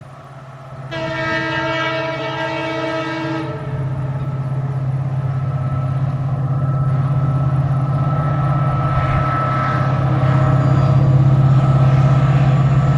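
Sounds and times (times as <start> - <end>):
diesel locomotive engine drone: 0.0 - 12.9
train horn blast: 0.9 - 3.9.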